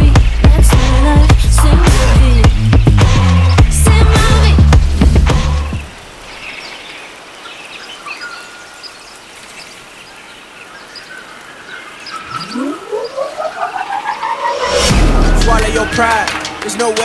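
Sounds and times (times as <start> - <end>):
birds chirping: 0.0 - 17.0
open-country ambience: 0.0 - 17.0
pulsing rising bird call: 11.7 - 17.0.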